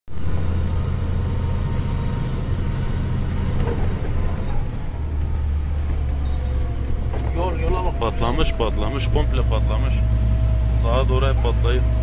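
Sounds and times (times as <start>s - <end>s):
vehicle engine and road drone: 0.0s - 12.0s.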